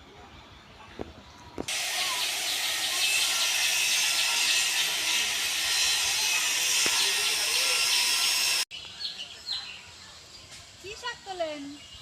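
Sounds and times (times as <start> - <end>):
many small birds chirping: 1.7 - 12.0.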